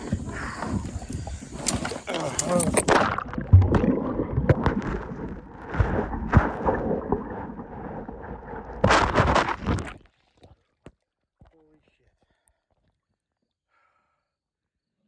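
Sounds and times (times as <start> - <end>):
water splashing: 0.0 - 10.5
loud splash: 2.1 - 10.0.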